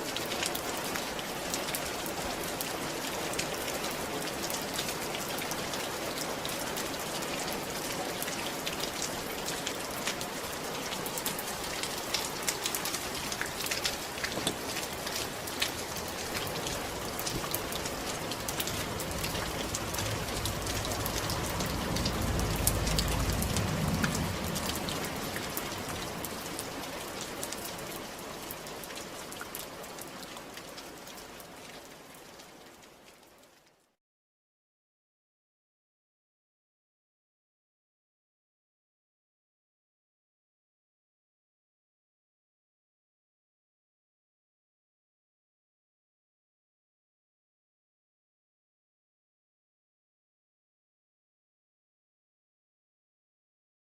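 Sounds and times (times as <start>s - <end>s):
rain falling on a roof: 0.0s - 34.0s
low rumble: 18.6s - 25.3s.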